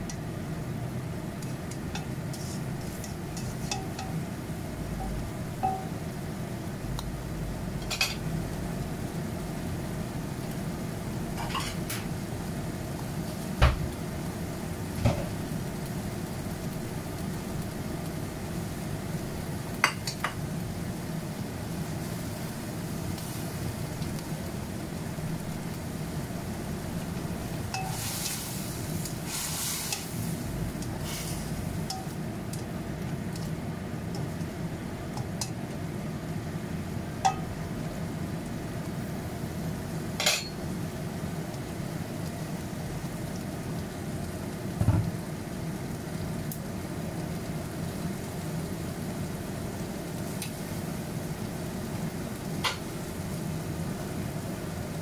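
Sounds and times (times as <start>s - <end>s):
okra sizzling in a wok: 0.0s - 55.0s
utensil clinking against pan: 3.0s - 4.2s.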